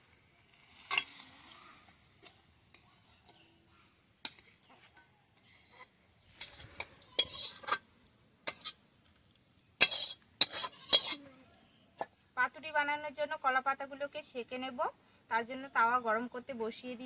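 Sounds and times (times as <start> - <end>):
metal spoon scraping pan: 0.4 - 3.6, 4.2 - 8.9, 9.8 - 11.3.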